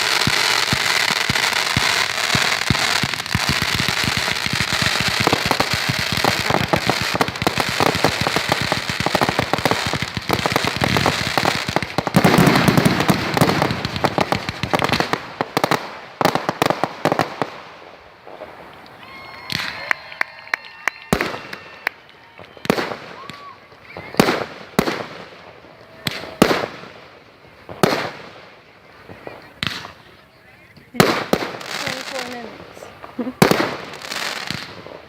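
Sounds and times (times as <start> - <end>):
fireworks popping and crackling: 0.0 - 35.0.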